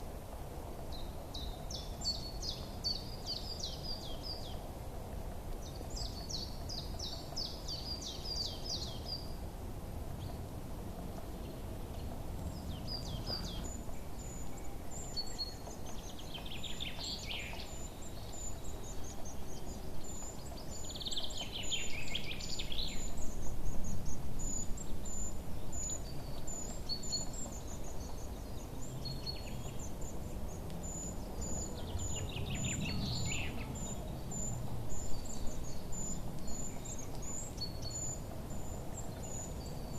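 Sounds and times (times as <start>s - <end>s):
low outdoor background noise: 0.0s - 39.9s
songbirds chirping and singing: 5.5s - 9.5s, 11.2s - 39.9s.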